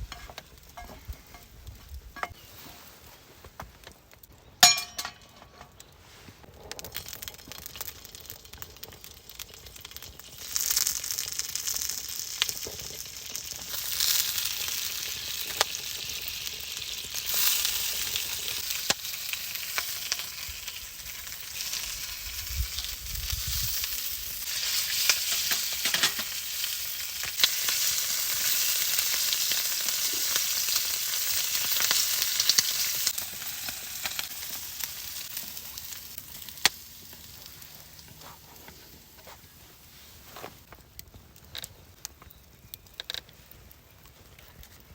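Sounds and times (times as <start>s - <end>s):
food sizzling in a pan: 7.0s - 38.2s.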